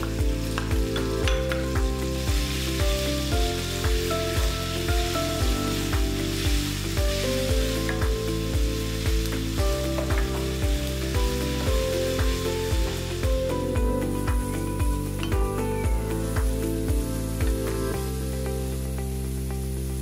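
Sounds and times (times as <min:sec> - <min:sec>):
background music with a beat: 0:00.0 - 0:20.0
food sizzling in a frying pan: 0:00.0 - 0:20.0.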